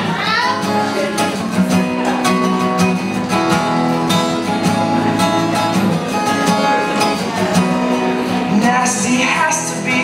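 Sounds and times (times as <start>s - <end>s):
acoustic guitar strumming: 0.0s - 10.0s
person singing: 8.2s - 10.0s.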